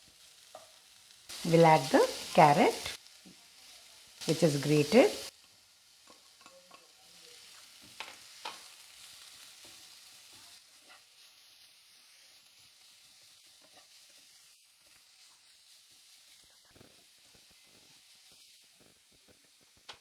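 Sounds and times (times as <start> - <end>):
vegetables sizzling in oil: 0.0 - 20.0
spoon scraping a pan: 10.8 - 11.2, 13.6 - 14.2.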